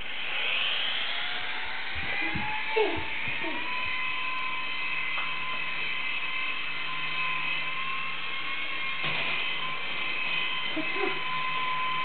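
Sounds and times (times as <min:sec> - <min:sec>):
low hum: 0:00.0 - 0:12.0
toy helicopter motor whining: 0:00.0 - 0:12.0.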